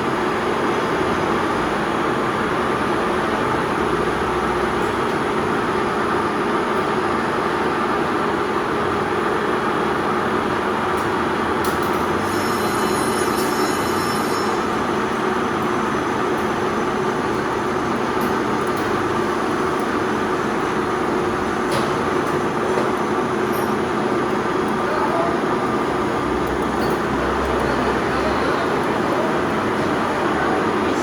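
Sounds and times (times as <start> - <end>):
metal lathe running: 12.2 - 31.0.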